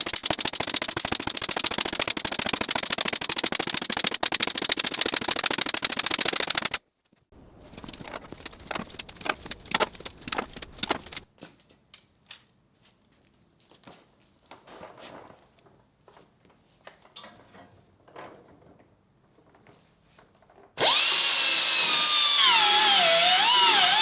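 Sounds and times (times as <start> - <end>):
welder crackling: 0.0 - 6.8, 7.4 - 11.2, 20.8 - 24.0.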